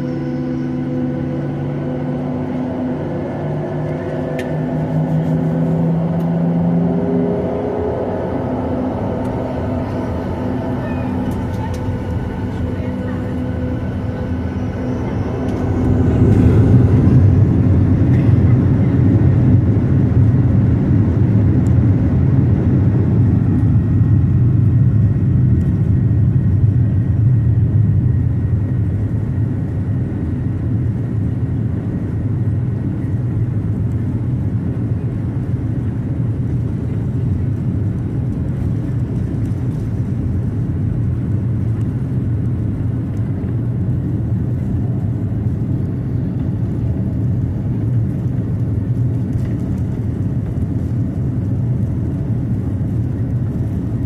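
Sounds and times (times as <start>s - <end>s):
jet engines spooling up: 0.0s - 20.3s.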